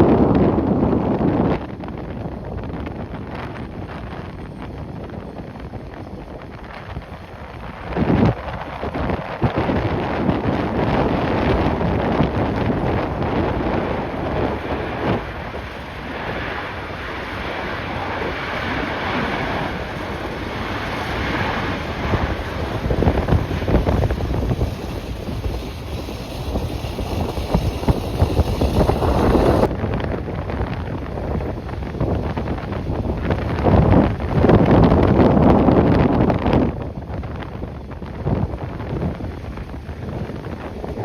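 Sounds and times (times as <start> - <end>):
gusty wind buffeting microphone: 0.0 - 41.0.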